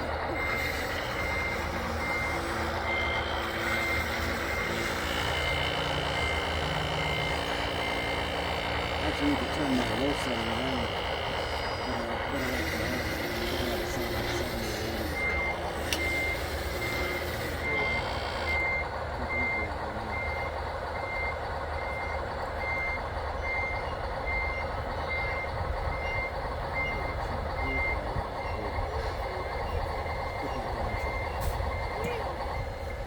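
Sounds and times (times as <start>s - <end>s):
machine noise: 0.0s - 18.6s
reversing alarm beeping: 0.0s - 33.0s.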